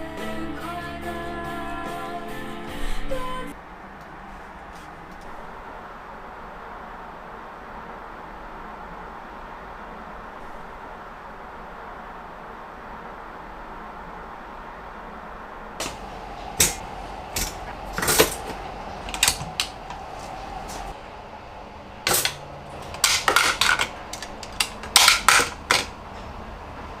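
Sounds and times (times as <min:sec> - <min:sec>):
faint steady hum: 0:00.0 - 0:27.0
small boxes tapping and scraping: 0:22.1 - 0:26.0.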